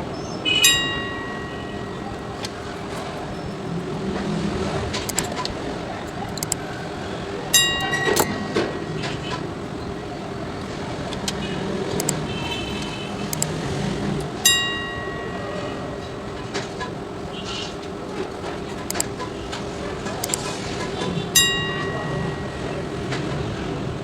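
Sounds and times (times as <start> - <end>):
steady background hum: 0.0 - 24.0
sharp ringing metal clinks: 0.6 - 2.7, 7.5 - 9.3, 14.4 - 16.5, 21.4 - 23.1
small handling clicks: 4.9 - 6.9, 7.8 - 9.4, 10.6 - 14.3, 17.8 - 21.0.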